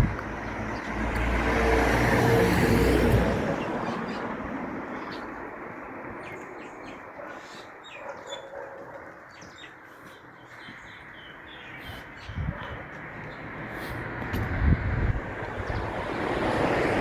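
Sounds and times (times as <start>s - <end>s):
vehicle passing: 0.0s - 7.8s, 10.8s - 17.0s
small birds chirping: 0.2s - 1.3s, 3.5s - 14.1s, 15.3s - 16.2s.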